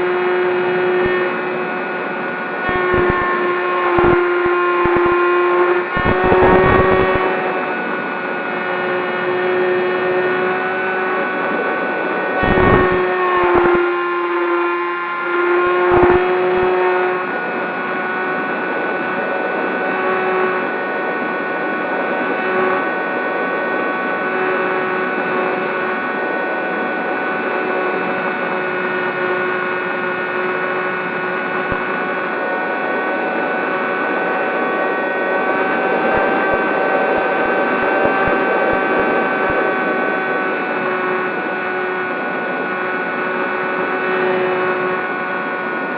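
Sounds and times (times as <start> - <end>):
model plane motor whining: 0.0 - 45.9
wind thumps on microphone: 6.0 - 7.2, 35.6 - 40.1.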